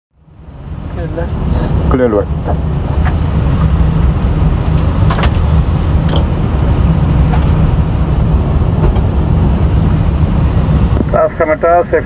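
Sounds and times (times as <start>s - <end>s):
cockpit engine rumble: 0.1s - 12.0s.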